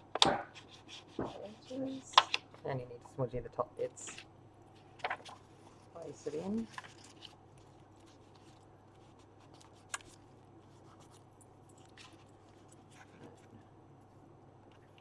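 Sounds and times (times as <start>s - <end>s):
low room hum: 0.0s - 15.0s
paper rustling: 4.0s - 13.7s.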